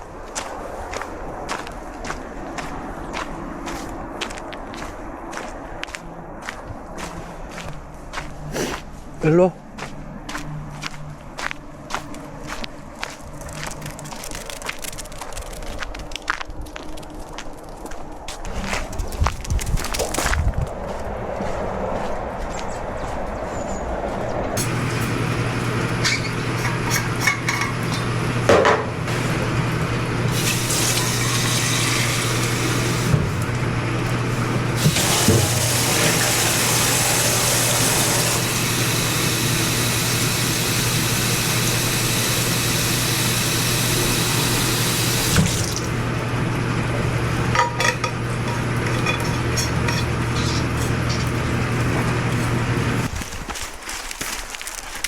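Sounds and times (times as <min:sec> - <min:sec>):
water running: 0:24.6 - 0:28.4, 0:30.3 - 0:33.7, 0:34.4 - 0:46.0
dishes clinking: 0:26.0 - 0:28.9, 0:47.5 - 0:51.3.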